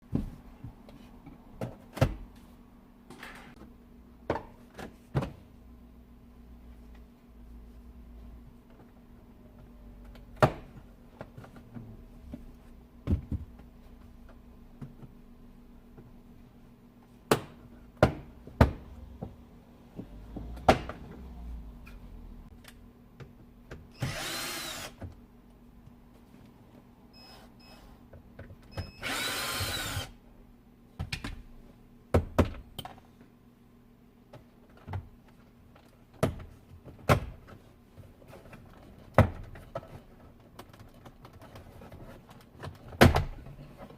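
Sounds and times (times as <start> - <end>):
cordless drill whining: 24.0 - 25.0, 28.9 - 30.2.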